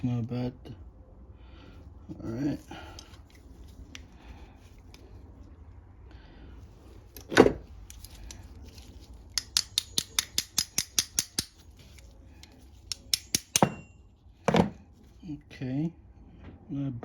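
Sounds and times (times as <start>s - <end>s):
sharp metallic clicks: 9.3s - 11.6s.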